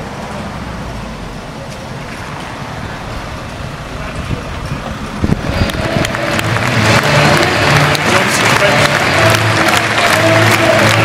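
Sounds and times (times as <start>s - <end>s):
football crowd din: 0.0s - 11.0s
fans clapping: 4.9s - 11.0s.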